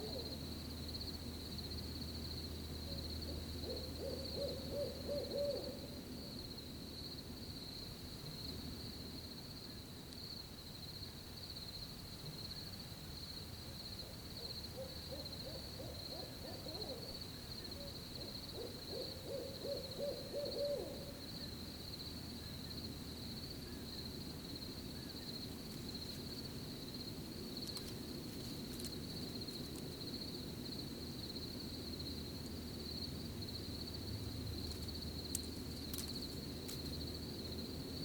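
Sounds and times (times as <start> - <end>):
owl hooting: 0.0 - 0.4, 2.9 - 6.0, 14.0 - 21.5
crickets chirping: 0.0 - 38.0.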